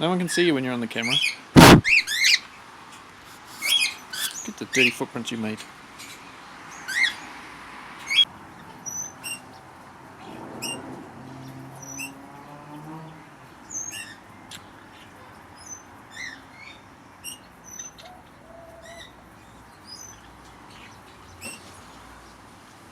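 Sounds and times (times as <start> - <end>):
birds chirping: 0.0 - 7.4, 8.0 - 22.5
sharp click: 1.6 - 2.0.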